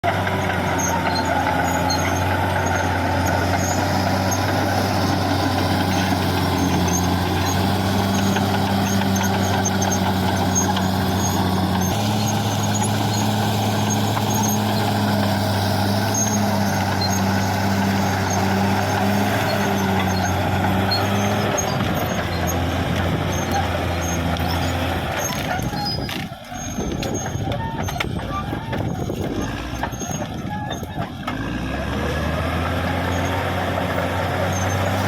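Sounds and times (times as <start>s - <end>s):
bulldozer diesel engine running: 0.0s - 35.0s.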